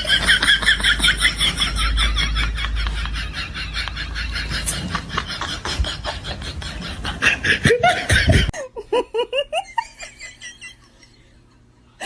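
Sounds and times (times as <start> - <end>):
people laughing: 0.0 - 11.4.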